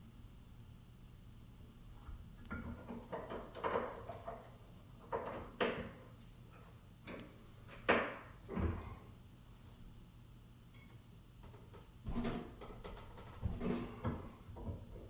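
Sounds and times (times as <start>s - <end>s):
pipe wrench knocking and scraping: 11.5s - 14.9s.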